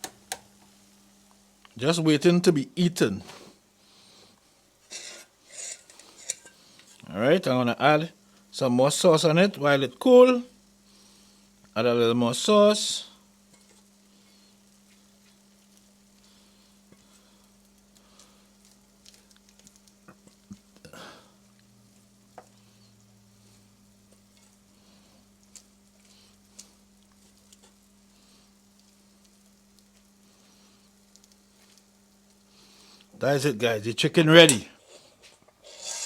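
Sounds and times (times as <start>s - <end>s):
faint sizzle: 0.0s - 36.0s
spoon scraping in a pan: 4.8s - 7.0s, 34.5s - 36.0s.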